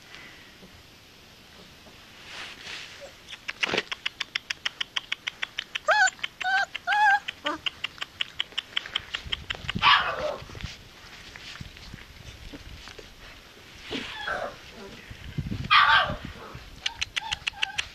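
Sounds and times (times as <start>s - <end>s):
rustling: 1.4s - 17.9s
puppies whimpering: 5.8s - 7.6s, 16.9s - 17.9s.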